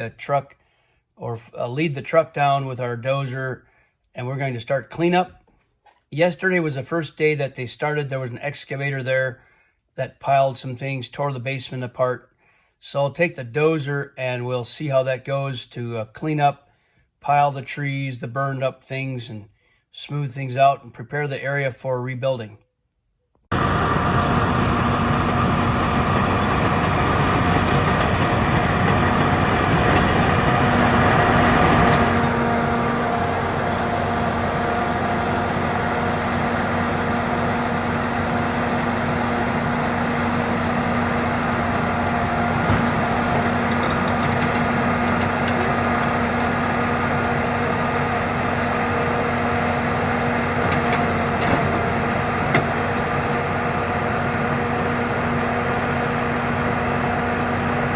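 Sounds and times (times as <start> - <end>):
large engine idling: 23.5 - 57.9.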